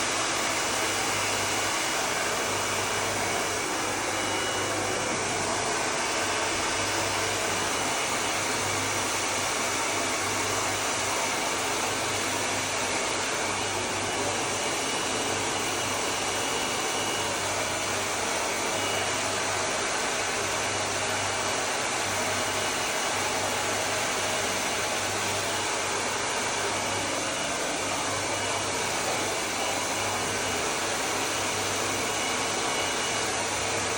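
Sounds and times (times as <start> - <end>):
hair dryer blowing: 0.0 - 16.8.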